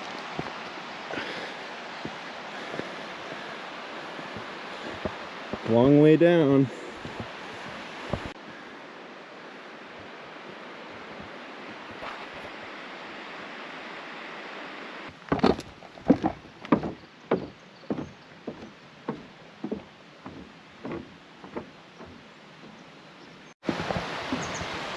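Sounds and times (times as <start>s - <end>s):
footsteps: 0.0s - 1.4s, 2.0s - 5.9s, 6.6s - 8.4s, 11.9s - 12.5s, 15.1s - 22.9s
steady rushing outdoor noise: 0.0s - 24.9s.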